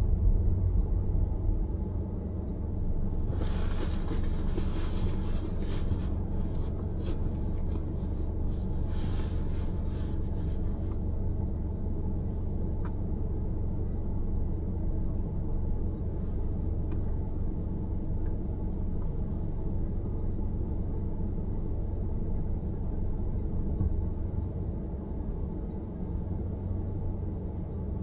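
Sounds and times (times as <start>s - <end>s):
low road rumble: 0.0s - 28.0s.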